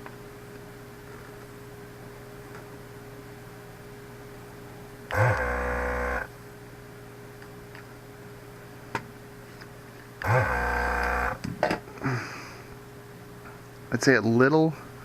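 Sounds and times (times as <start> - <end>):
vacuum pump buzzing: 5.1 - 6.3, 10.2 - 11.5.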